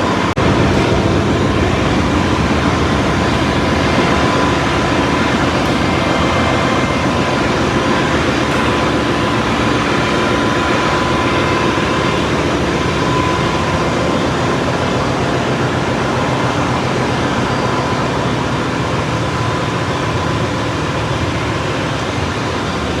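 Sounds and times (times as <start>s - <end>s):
engine-room machinery drone: 0.0s - 23.0s.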